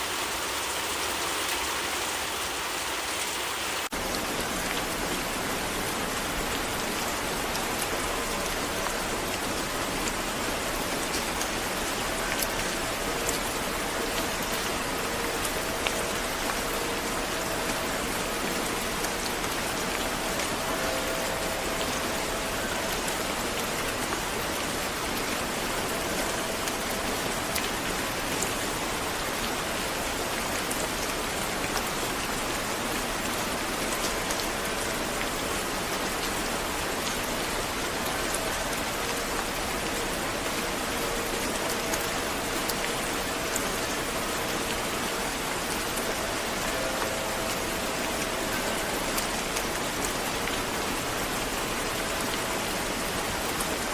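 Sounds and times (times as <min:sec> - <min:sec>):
rain pattering: 0:00.0 - 0:53.9.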